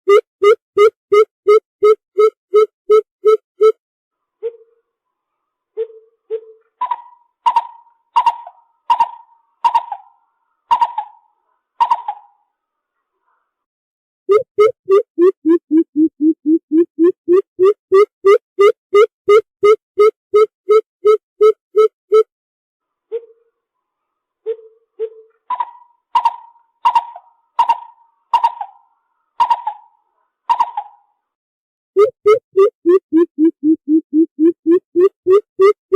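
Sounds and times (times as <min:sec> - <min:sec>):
bird calling hollow notes: 0:14.3 - 0:22.2, 0:32.0 - 0:35.9.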